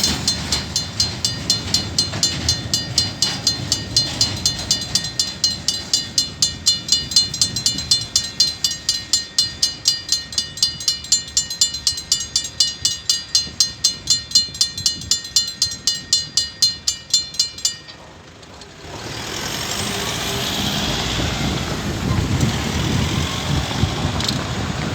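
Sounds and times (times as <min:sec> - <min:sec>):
crossing alarm bells ringing: 0:00.0 - 0:24.9
road traffic noise: 0:00.0 - 0:24.9.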